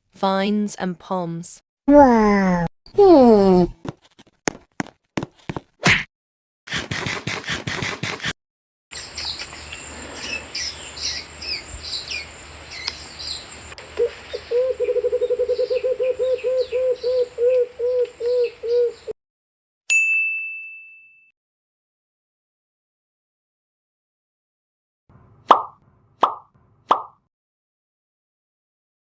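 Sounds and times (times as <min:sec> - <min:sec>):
birds chirping and trilling: 0:09.0 - 0:19.1
ringing chime: 0:19.9 - 0:21.3.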